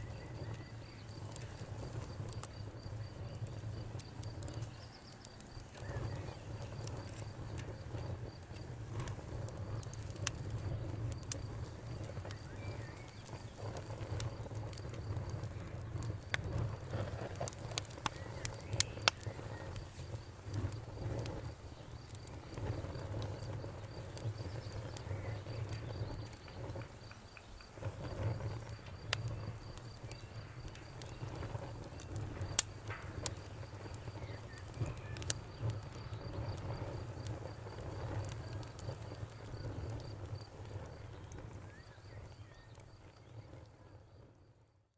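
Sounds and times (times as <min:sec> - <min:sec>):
campfire crackling and popping: 0:00.0 - 0:44.9
cricket chirping: 0:17.8 - 0:44.4.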